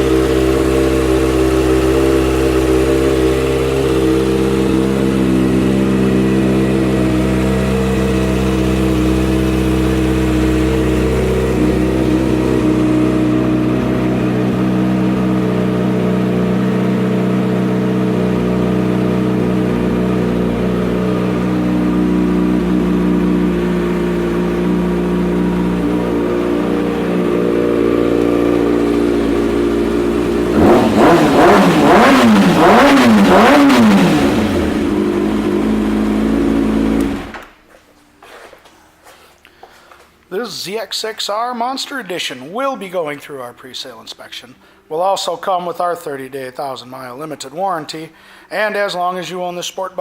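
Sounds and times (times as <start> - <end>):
motorcycle engine idling: 0.0 - 37.4.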